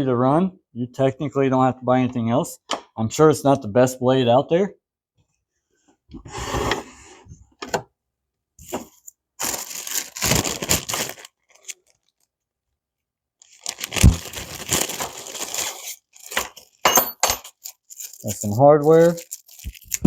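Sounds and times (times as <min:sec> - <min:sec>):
packaging rustling and tearing: 0:08.7 - 0:12.3, 0:13.4 - 0:16.8, 0:17.4 - 0:20.0.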